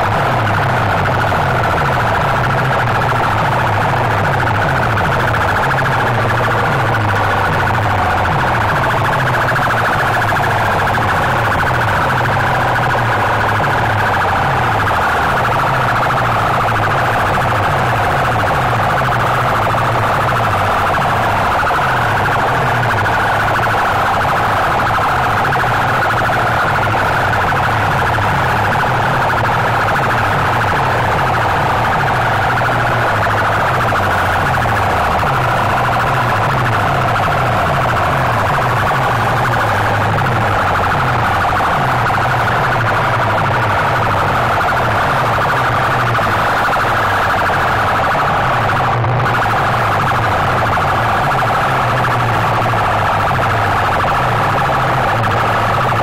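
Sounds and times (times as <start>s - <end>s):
siren-like wailing tone: 0.0s - 56.0s.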